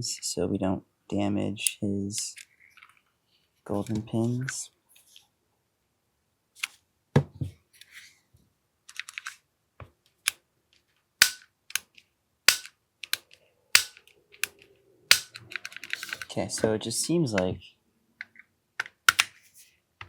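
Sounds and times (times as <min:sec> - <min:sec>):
plastic and metal clicks: 0:11.2 - 0:11.9, 0:12.5 - 0:16.3, 0:18.2 - 0:19.3.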